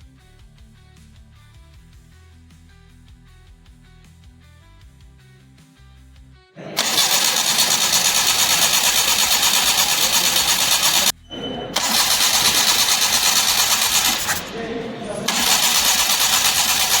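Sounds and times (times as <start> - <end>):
engine cranking by starter motor: 6.6 - 17.0.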